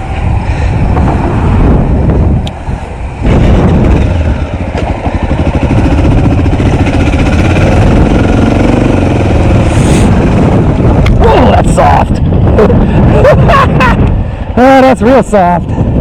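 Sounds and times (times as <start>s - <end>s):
motorcycle engine revving: 3.2s - 11.2s.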